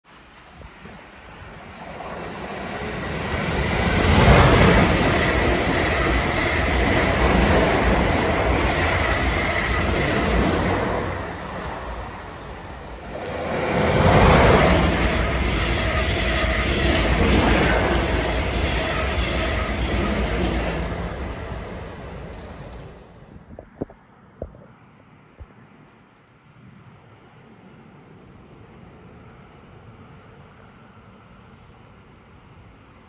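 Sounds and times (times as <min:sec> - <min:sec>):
train passing at speed: 0:00.1 - 0:23.5.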